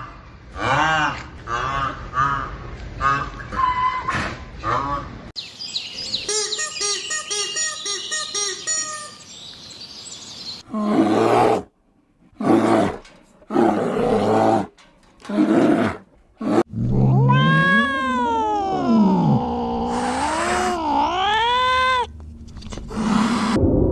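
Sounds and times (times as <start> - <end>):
high animal chirps: 5.4 - 10.6.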